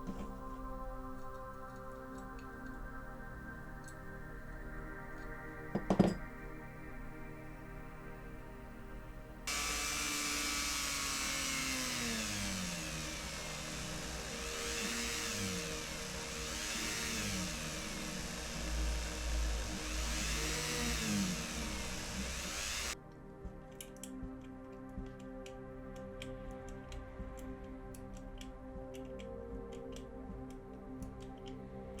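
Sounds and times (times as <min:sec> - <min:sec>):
small electric drill running: 0:09.5 - 0:23.0.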